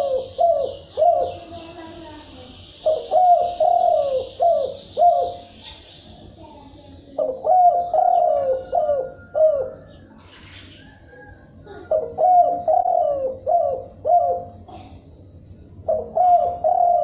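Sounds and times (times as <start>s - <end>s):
dove cooing: 0.0s - 2.1s, 2.8s - 5.9s, 7.1s - 15.0s, 15.8s - 17.0s
faint steady hiss: 0.0s - 8.4s.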